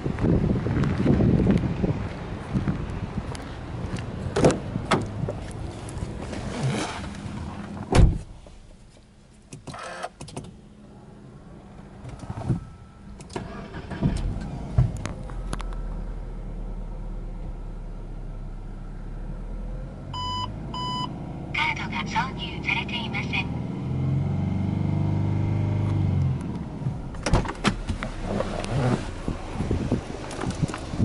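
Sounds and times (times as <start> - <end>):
car engine starting and idling: 4.3 - 31.0
car door shutting: 6.3 - 10.6, 12.0 - 15.7, 27.1 - 31.0.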